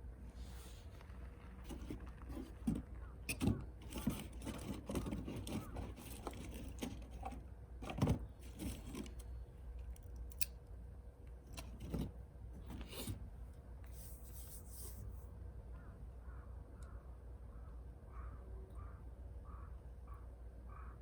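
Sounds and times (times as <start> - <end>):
scraping of cooking gear: 1.5 - 9.2
cooking gear clicks and knocks: 1.7 - 10.5.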